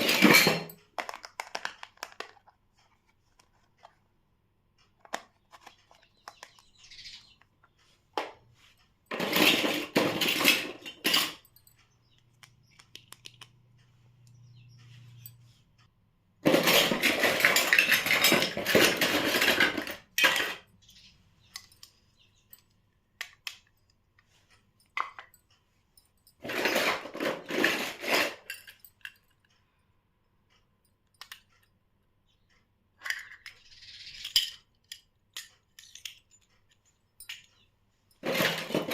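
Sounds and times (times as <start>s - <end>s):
plastic toy pieces clattering: 0.0s - 4.0s, 9.1s - 11.8s, 16.4s - 20.8s, 26.3s - 29.4s, 33.0s - 38.9s.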